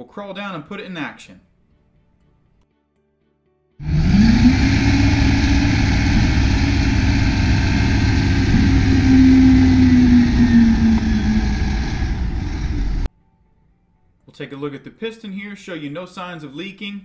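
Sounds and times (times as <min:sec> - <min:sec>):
diesel truck engine running: 0:03.8 - 0:13.1
hydraulic whine: 0:03.8 - 0:13.1.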